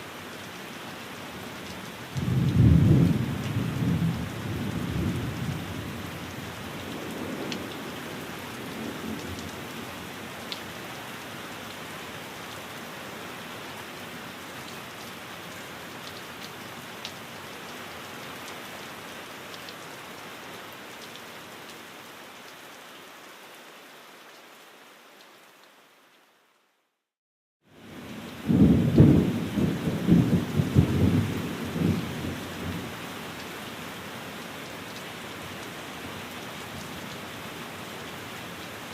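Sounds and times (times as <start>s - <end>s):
steady rain: 0.0s - 38.9s
low thunder rumbles: 2.2s - 6.1s, 28.4s - 32.9s.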